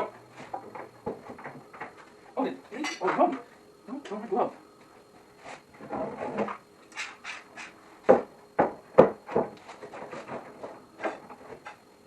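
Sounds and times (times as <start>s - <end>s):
wooden boards knocking: 0.0s - 2.0s, 8.0s - 11.8s.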